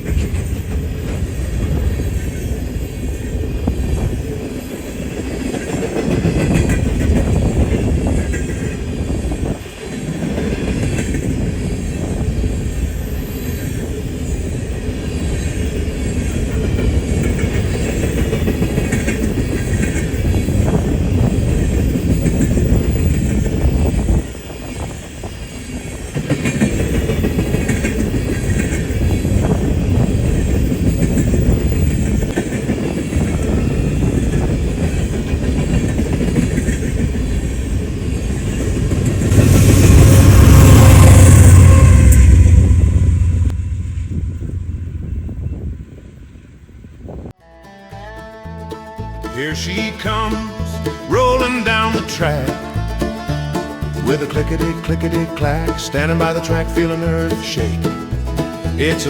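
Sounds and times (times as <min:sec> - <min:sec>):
wheels clicking over rail joints: 0:00.0 - 0:40.6
freight train wheels rumbling: 0:00.0 - 0:47.4, 0:49.4 - 0:59.0
wheel squeal: 0:06.4 - 0:43.5.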